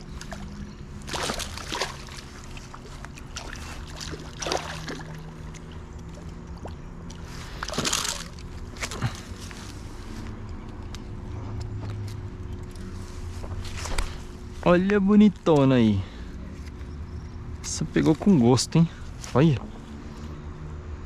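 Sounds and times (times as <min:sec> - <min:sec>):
water splashing and sloshing: 0:00.0 - 0:10.4, 0:11.8 - 0:15.6
steady low hum: 0:00.0 - 0:21.0.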